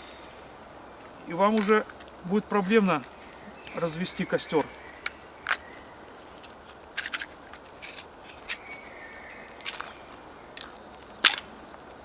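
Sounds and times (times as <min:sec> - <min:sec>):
small objects clicking and scraping: 0:04.6 - 0:12.0.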